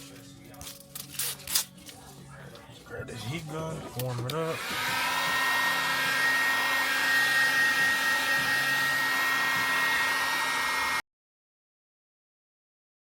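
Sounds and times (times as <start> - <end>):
heat gun hot air rush: 4.4 - 11.0.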